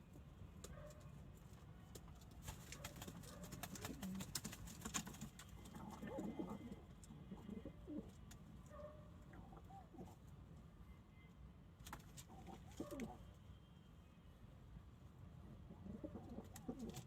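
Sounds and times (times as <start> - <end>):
pigeons cooing: 3.5 - 4.5, 5.6 - 8.2, 12.3 - 13.2, 15.5 - 17.0.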